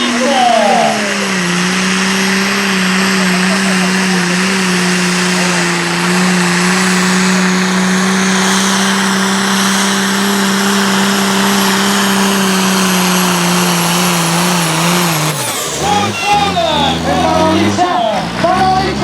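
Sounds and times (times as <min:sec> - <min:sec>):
heavy exhaust noise: 0:00.0 - 0:19.0
tractor engine at high revs: 0:00.0 - 0:19.0.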